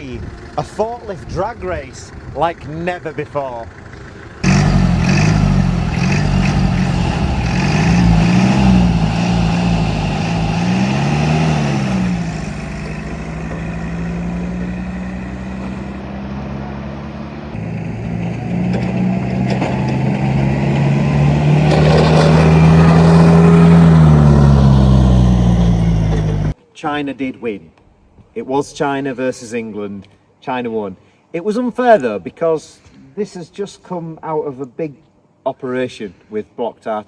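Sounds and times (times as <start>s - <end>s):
diesel forklift engines revving: 0.0s - 26.6s.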